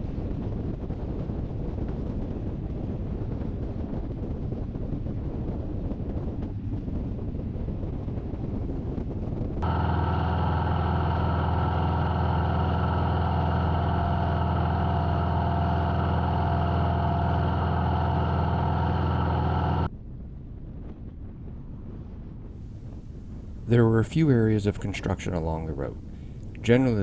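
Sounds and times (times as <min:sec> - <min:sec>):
motorcycle engine cruising: 0:09.6 - 0:19.9, 0:22.6 - 0:27.0.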